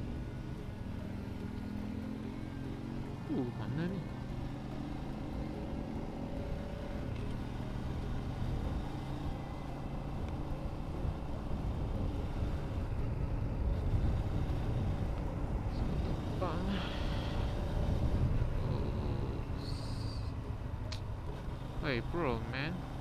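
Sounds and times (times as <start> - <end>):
road noise: 0.0 - 23.0
wind noise: 10.9 - 20.2.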